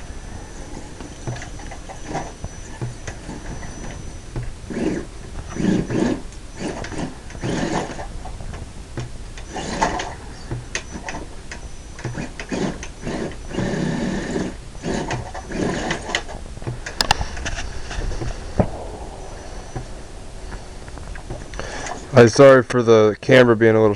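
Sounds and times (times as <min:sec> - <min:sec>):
electric motor whirring in bursts: 0:00.0 - 0:22.0
sharp clicks: 0:00.6 - 0:22.8.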